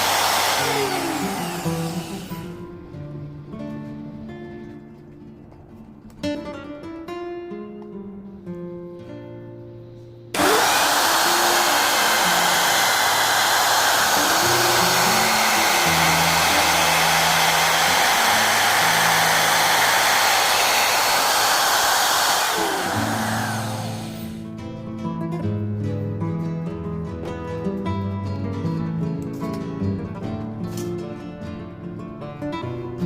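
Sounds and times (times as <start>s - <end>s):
power tool motor running: 0.0s - 2.6s, 10.4s - 24.5s
acoustic guitar music: 1.6s - 10.4s, 24.3s - 33.0s.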